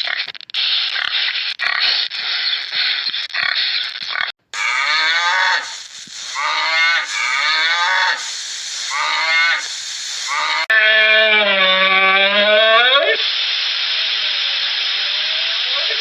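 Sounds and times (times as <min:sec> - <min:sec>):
rough noise: 0:04.4 - 0:10.8
cattle mooing: 0:04.6 - 0:12.3.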